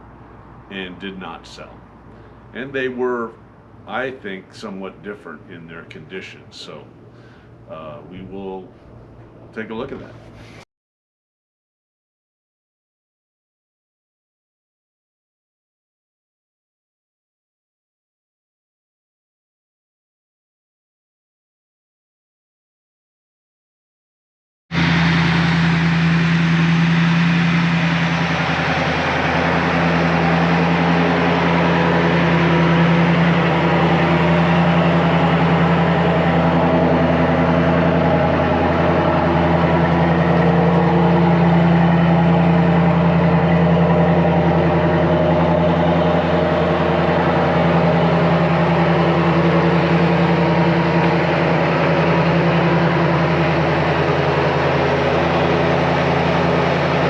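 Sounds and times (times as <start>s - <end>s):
car engine idling: 24.8s - 57.0s.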